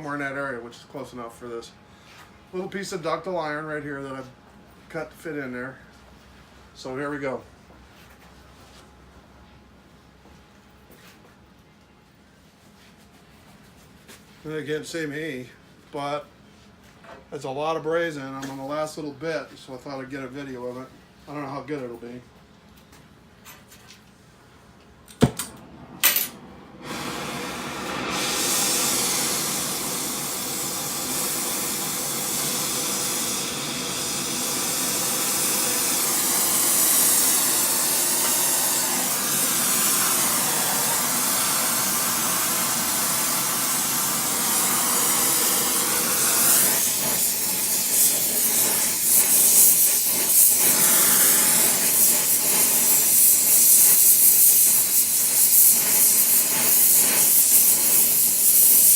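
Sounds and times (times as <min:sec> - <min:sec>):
torch hissing: 0:25.1 - 0:58.9.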